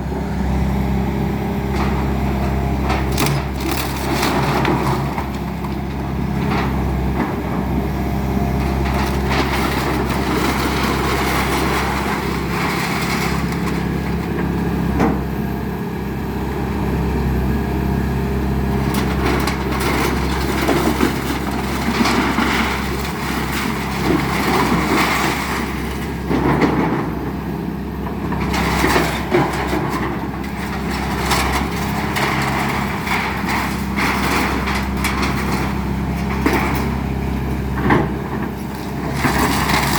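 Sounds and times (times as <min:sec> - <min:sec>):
excavator engine running: 0:00.0 - 0:39.9
wood crushing and splintering: 0:01.6 - 0:15.3, 0:18.6 - 0:39.9.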